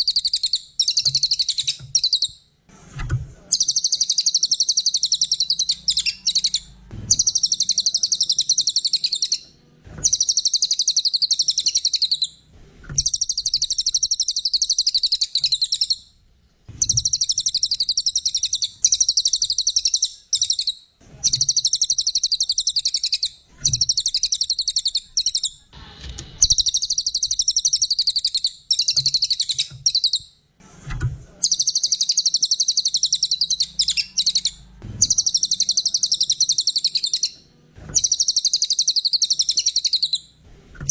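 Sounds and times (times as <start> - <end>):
songbird trilling: 3.5 - 9.4, 10.0 - 12.3, 13.0 - 16.0, 16.8 - 25.6, 26.4 - 30.2, 31.4 - 37.4, 38.0 - 40.2.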